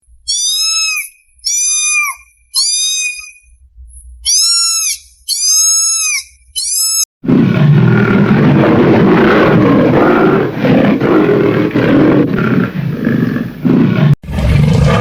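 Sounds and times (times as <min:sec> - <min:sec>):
high-pitched animal calls: 0:00.2 - 0:07.1
rough roar-like animal call: 0:07.2 - 0:15.0.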